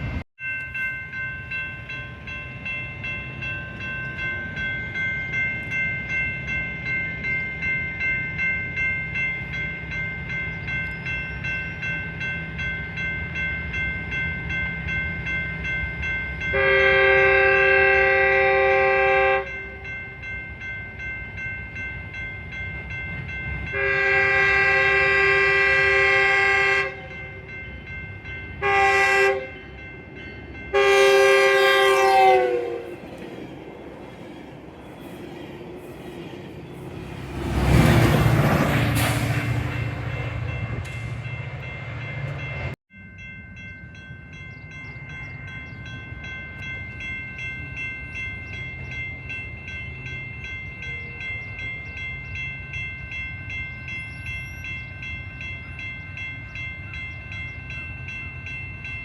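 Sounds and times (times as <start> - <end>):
crossing warning bell ringing: 0.0 - 59.0
train rumble: 0.0 - 59.0
locomotive air horn blasts: 16.5 - 19.7, 23.7 - 27.3, 28.6 - 29.6, 30.7 - 33.0.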